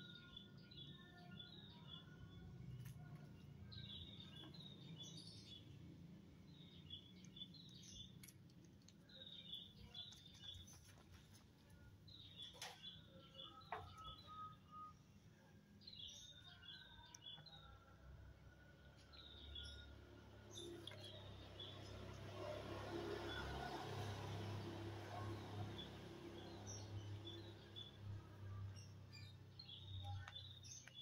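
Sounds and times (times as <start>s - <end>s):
small bird chirping: 0.0s - 15.1s, 25.4s - 31.0s.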